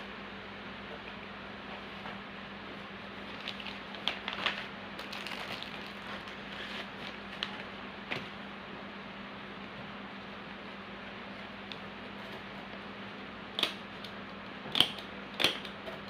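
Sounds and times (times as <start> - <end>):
steady hiss with low hum: 0.0 - 16.0
clicks and rustles of packaging: 3.3 - 7.7.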